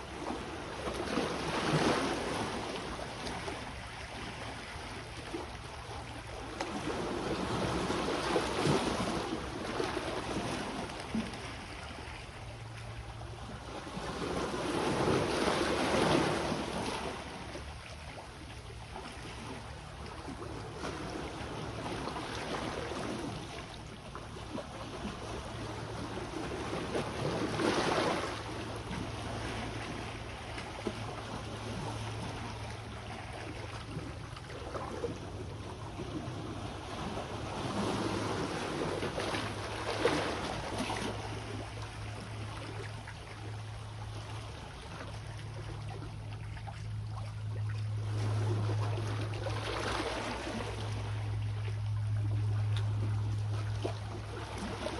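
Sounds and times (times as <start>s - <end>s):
sea waves washing ashore: 0.0s - 54.9s
low hum: 17.2s - 54.9s.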